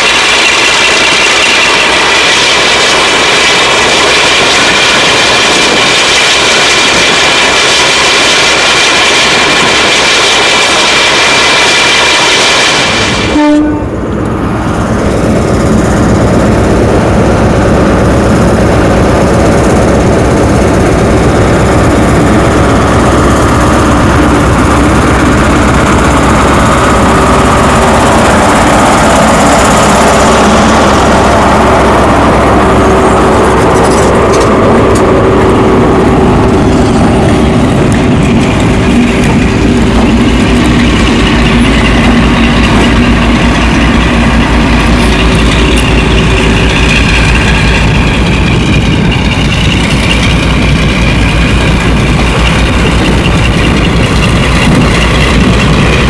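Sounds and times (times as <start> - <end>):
train rushing noise: 0.0 - 56.0
low engine rumble: 13.3 - 56.0.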